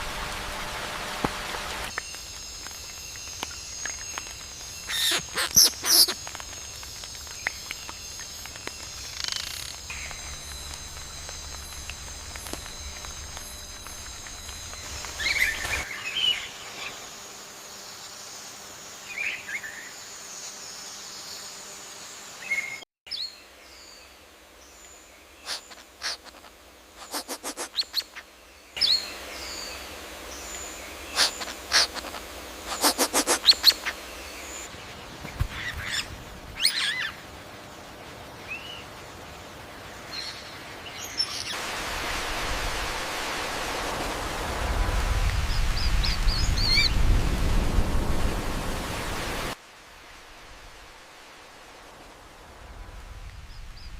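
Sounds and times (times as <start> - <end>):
steady hiss: 0.0 - 22.8, 23.4 - 53.9
outdoor background noise: 0.0 - 53.9
birds chirping and calling: 30.6 - 34.6.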